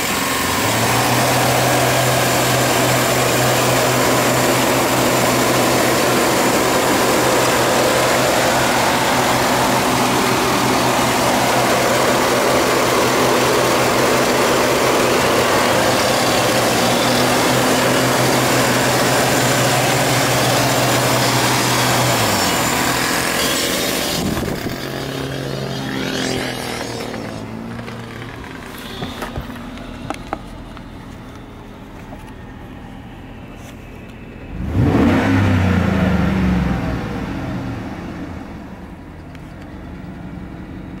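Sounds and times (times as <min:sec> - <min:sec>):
car engine revving and idling: 0:00.0 - 0:41.0.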